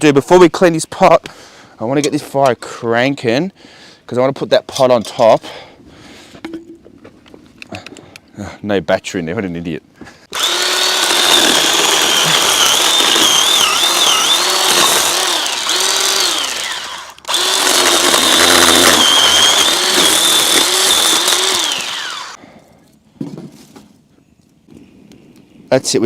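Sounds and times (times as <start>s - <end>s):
battery blower whining rush: 10.3s - 22.4s.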